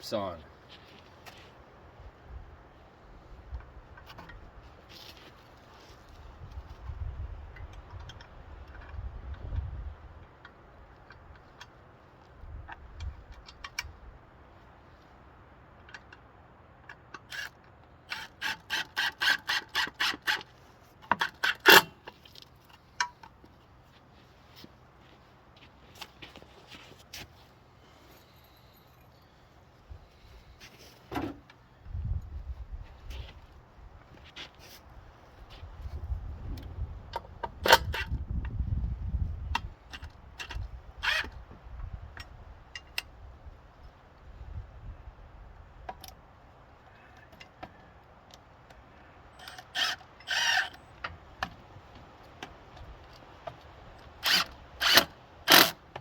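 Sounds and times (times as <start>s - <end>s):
strap being pulled tight: 54.2s - 55.8s.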